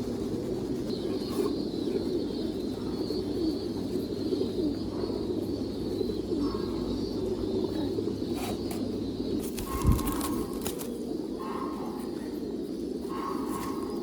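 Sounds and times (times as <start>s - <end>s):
pigeons cooing: 0.0s - 14.0s.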